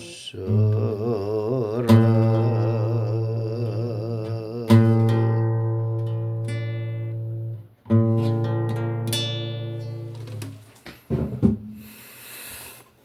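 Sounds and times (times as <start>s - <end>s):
acoustic guitar chords: 0.0s - 10.7s
knocks: 11.1s - 11.7s.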